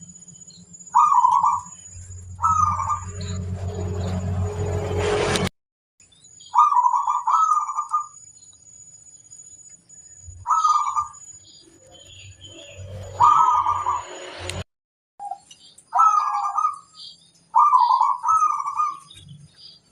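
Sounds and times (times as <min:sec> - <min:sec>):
dove cooing: 0:00.9 - 0:01.7, 0:02.4 - 0:03.2, 0:06.6 - 0:08.2, 0:10.4 - 0:11.2, 0:13.2 - 0:14.0, 0:16.0 - 0:16.9, 0:17.5 - 0:19.1.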